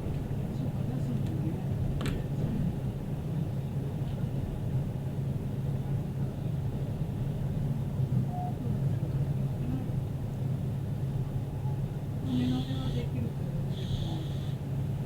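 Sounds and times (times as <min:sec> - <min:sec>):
diesel railcar engine idling: 0:00.0 - 0:15.0.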